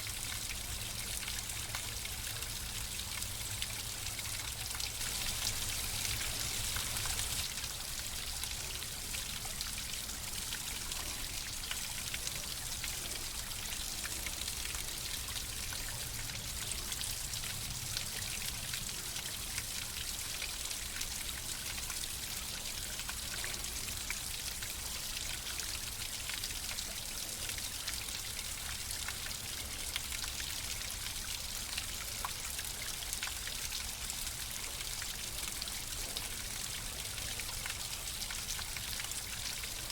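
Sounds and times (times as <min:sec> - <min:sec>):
water rushing and splashing: 0:05.0 - 0:07.5.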